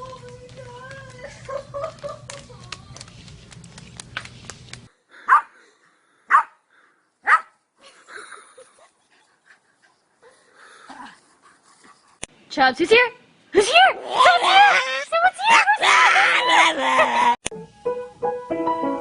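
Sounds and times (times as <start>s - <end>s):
dog barking: 5.3s - 5.6s, 6.3s - 6.6s, 7.2s - 7.6s.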